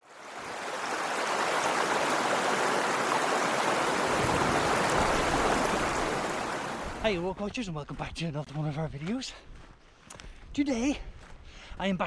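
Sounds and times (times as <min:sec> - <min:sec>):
mountain stream running: 0:00.0 - 0:07.6.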